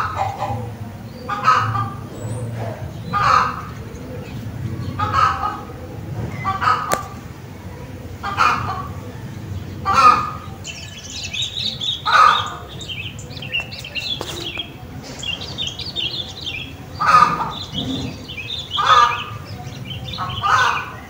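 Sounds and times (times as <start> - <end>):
small birds chirping: 0.0 - 21.0
louder lower bird calls: 9.6 - 21.0.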